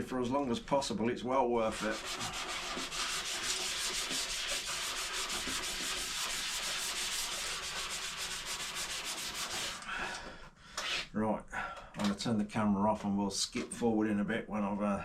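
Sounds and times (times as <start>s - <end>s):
sandpaper rubbing on plastic: 1.6s - 9.9s, 10.8s - 11.1s.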